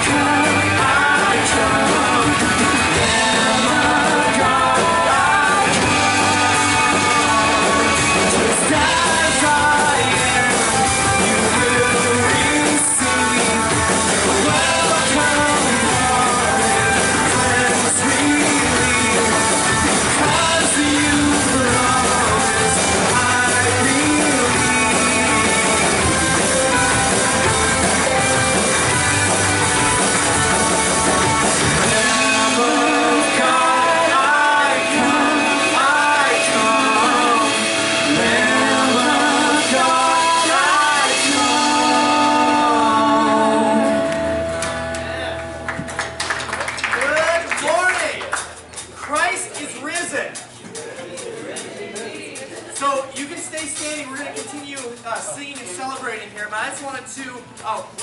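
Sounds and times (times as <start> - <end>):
people singing: 0.0 - 26.5, 31.6 - 44.5
electric guitar: 0.0 - 47.0
drums: 0.0 - 58.0.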